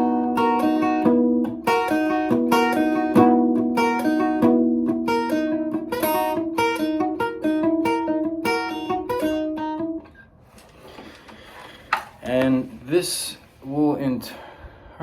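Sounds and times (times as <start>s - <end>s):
plucked guitar notes: 0.0s - 10.2s.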